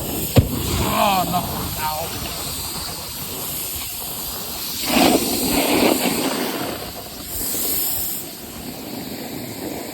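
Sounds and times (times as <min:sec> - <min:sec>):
snowboard scraping over snow: 0:00.0 - 0:09.9
wind rush on microphone: 0:00.0 - 0:09.9.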